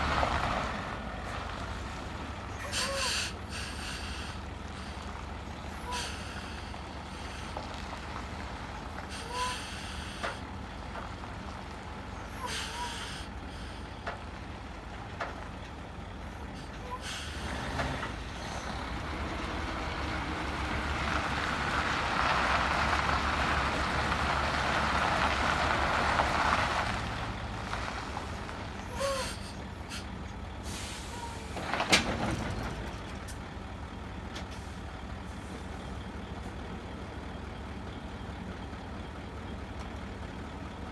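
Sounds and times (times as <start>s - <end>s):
truck engine running: 0.0s - 40.9s
air brakes hissing: 2.6s - 5.0s, 5.8s - 7.6s, 9.0s - 10.4s, 12.4s - 14.0s, 16.3s - 18.8s, 28.9s - 33.4s.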